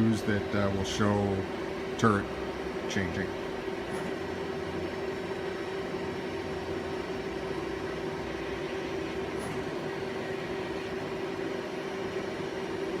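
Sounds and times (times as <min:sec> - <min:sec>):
lathe humming: 0:00.0 - 0:13.0.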